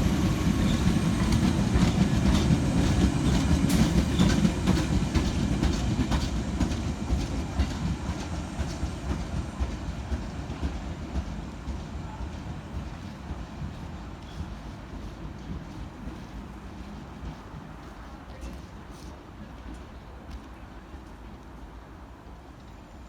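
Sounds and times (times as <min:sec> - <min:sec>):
train rumbling on rails: 0:00.0 - 0:23.0
wheels clicking over rail joints: 0:00.6 - 0:07.9.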